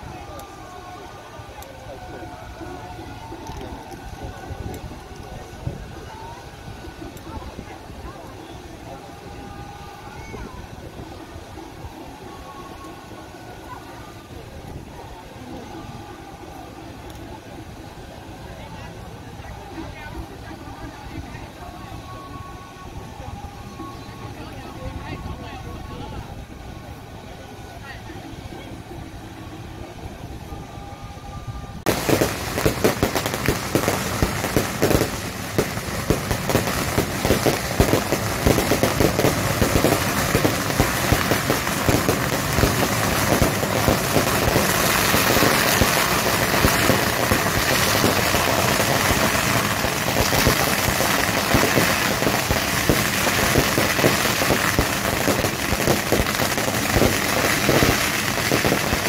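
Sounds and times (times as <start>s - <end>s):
firecrackers crackling: 0.0s - 22.4s, 31.8s - 59.0s.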